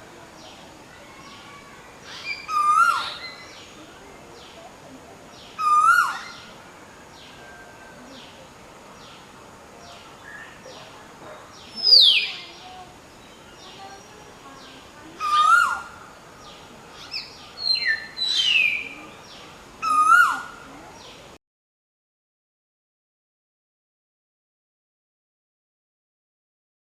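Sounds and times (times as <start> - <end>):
bird whistled calls: 2.1 - 3.6, 11.8 - 12.4, 17.0 - 18.9.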